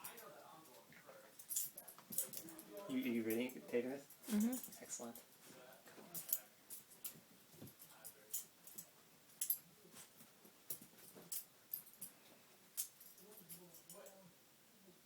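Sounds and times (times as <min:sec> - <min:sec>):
dog and cat scuffling: 0:04.1 - 0:13.7.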